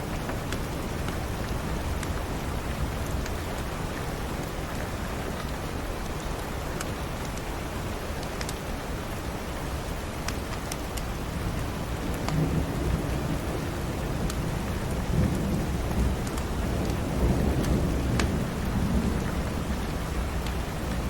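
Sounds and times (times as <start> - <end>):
steady rain: 0.0 - 21.0
thunder rumbling: 11.9 - 21.0.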